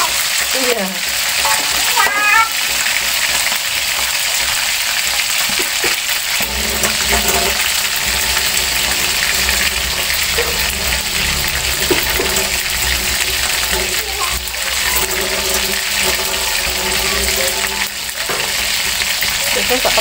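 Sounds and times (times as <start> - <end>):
chicken deep-frying in hot oil: 0.0 - 20.0
low rumble: 6.0 - 20.0.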